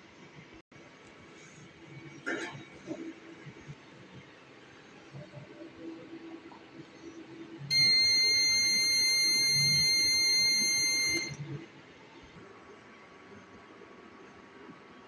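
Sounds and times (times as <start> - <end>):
high-pitched electronic buzzer: 7.7 - 11.4.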